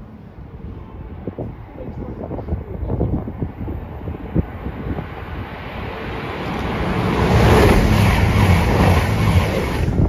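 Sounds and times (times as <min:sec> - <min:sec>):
low drone of diesel engines: 0:00.0 - 0:10.0
train wheels and air rushing: 0:03.4 - 0:10.0.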